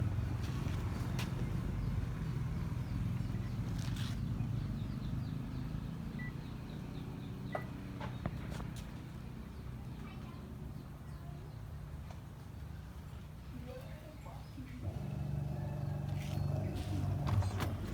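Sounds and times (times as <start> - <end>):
washing machine motor hum: 14.8 - 17.9.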